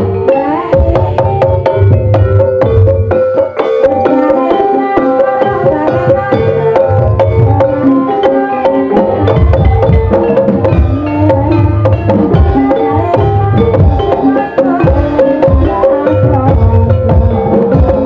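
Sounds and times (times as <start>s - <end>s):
hand drum rhythms: 0.0s - 18.0s
metallophone melody: 0.0s - 18.0s.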